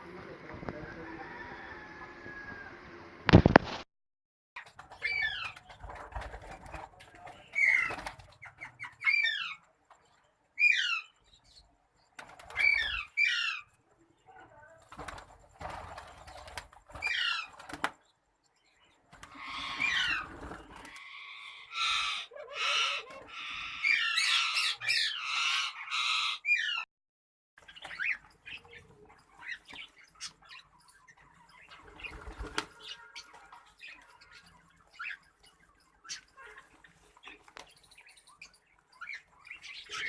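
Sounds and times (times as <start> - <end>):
small parrots squawking: 7.6 - 9.6, 12.6 - 13.7, 19.3 - 26.8.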